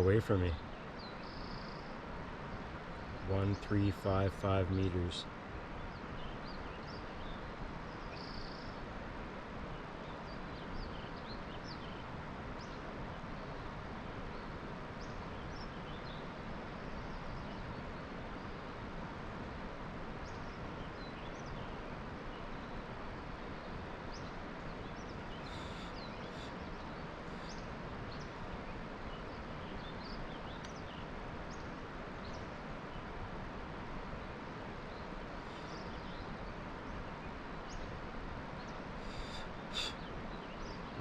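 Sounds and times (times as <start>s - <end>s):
steady hiss: 21.4s - 41.0s
bird chirps: 24.1s - 28.3s, 38.6s - 41.0s.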